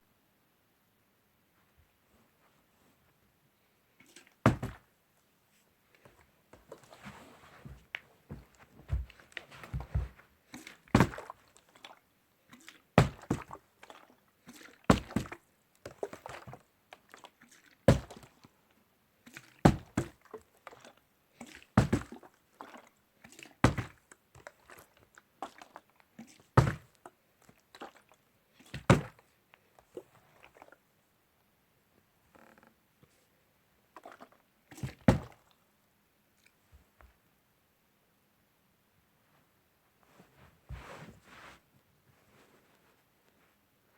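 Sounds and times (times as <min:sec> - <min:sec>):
faint scuffing and rustling: 0:01.6 - 0:03.3, 0:05.5 - 0:11.1, 0:39.2 - 0:43.7
sharp knocks and thumps: 0:04.4 - 0:04.8, 0:07.6 - 0:10.2.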